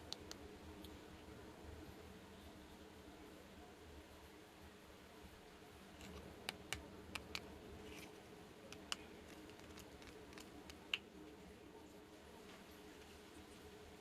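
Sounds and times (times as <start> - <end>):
plastic toy pieces clicking: 6.5 - 7.4, 8.7 - 11.0.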